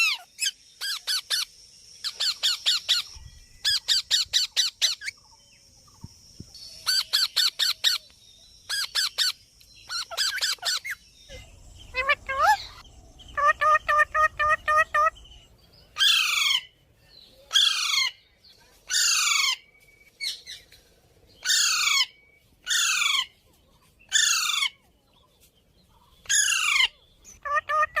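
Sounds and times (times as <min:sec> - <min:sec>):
parakeet chirping and squawking: 0:00.0 - 0:05.2, 0:08.7 - 0:16.8, 0:21.4 - 0:23.3, 0:26.2 - 0:28.0.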